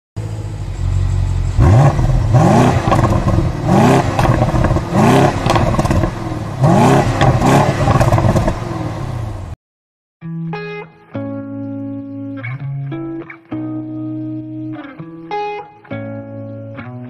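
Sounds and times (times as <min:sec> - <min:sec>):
car engine revving: 0:00.2 - 0:09.6.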